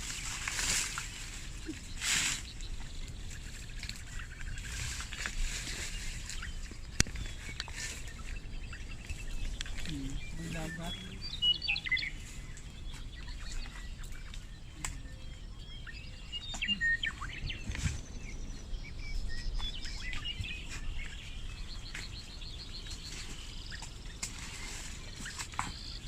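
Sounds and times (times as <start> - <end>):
wild birds chirping: 0.0 - 26.0.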